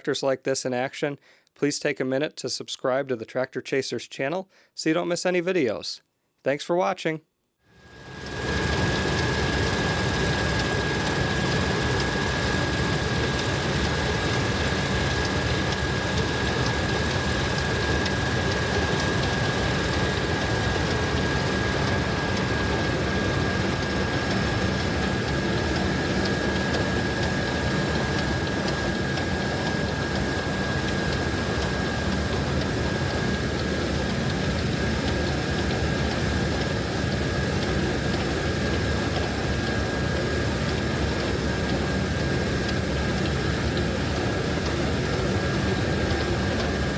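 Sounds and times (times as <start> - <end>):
constant high whine: 7.8 - 46.9
heavy farm machinery engine drone: 8.5 - 39.6.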